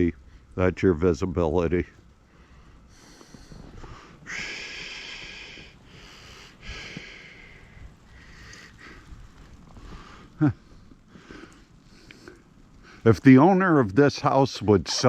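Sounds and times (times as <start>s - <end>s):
person breathing: 2.3s - 13.1s.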